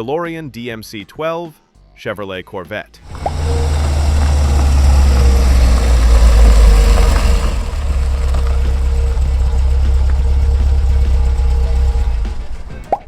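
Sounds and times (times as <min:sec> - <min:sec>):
car engine running: 0:03.1 - 0:13.0.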